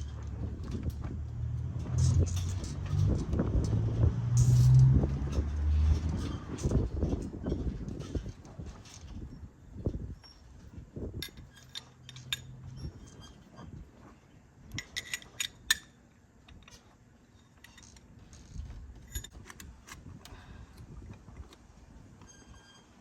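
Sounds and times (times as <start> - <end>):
metal tools clinking: 1.9 - 3.2, 11.2 - 13.4, 14.7 - 20.4.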